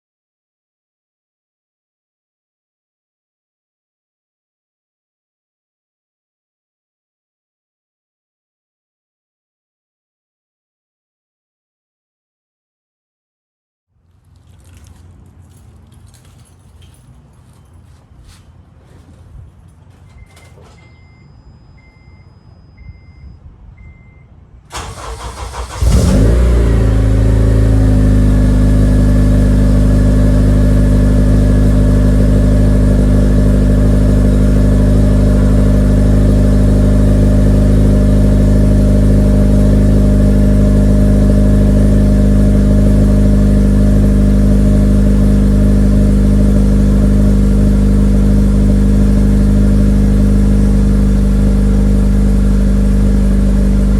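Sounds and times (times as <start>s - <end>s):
faint repeating beep: 20.2s - 24.4s
car engine idling: 24.7s - 53.9s.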